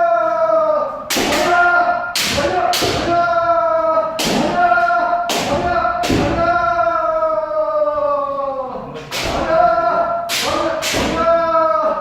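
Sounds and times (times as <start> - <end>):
people shouting: 0.0 - 12.0.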